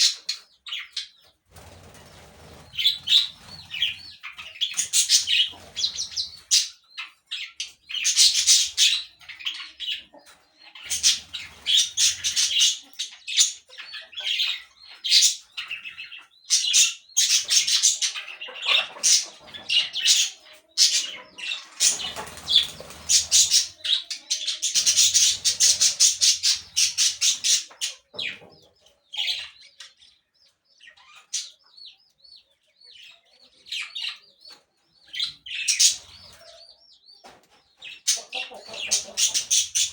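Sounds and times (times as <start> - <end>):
parakeets squawking: 2.6 - 6.7, 7.3 - 10.1, 10.8 - 28.4, 35.1 - 36.6, 37.8 - 39.9.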